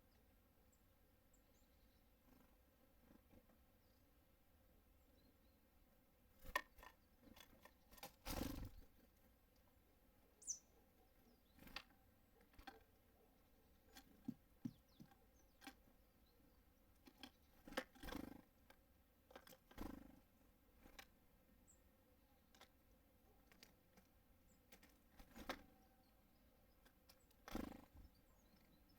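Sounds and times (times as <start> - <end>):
birds tapping at feeder: 6.3 - 8.9, 10.5 - 21.8, 22.4 - 28.9.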